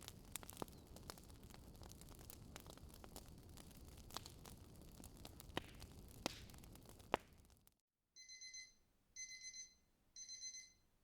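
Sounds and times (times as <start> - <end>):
fireplace crackling: 0.0 - 7.8
digital watch alarm beeping: 8.2 - 10.8.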